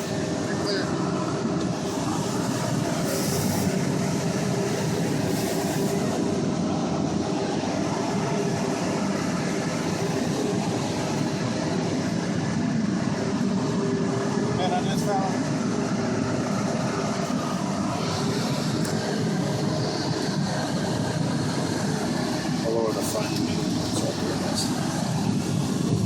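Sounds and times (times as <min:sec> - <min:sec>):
car engine drone inside cabin: 0:00.0 - 0:26.0.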